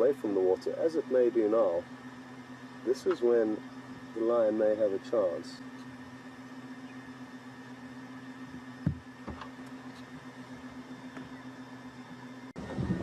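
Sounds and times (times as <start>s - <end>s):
steady low hum: 0.0s - 13.0s
soft knocks: 8.8s - 9.5s.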